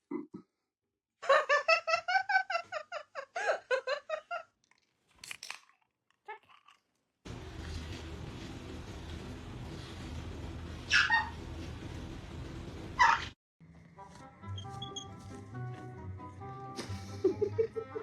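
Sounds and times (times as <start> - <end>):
high-pitched laughter: 16.8 - 18.0.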